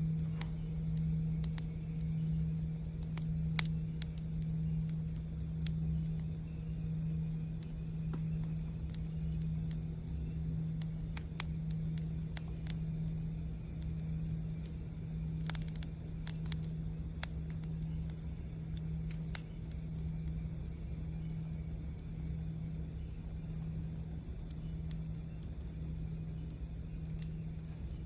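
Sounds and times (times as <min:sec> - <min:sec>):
campfire crackling and popping: 0:00.0 - 0:28.0
singing bowl humming: 0:00.0 - 0:28.0.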